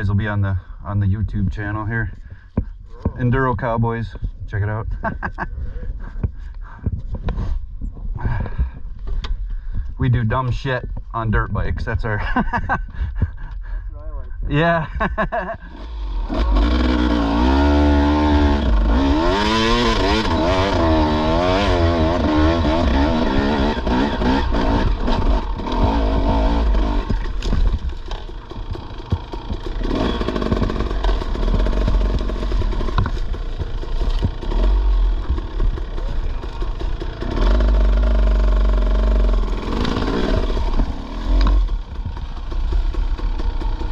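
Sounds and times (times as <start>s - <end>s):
dirt bike engine revving: 15.2s - 43.9s.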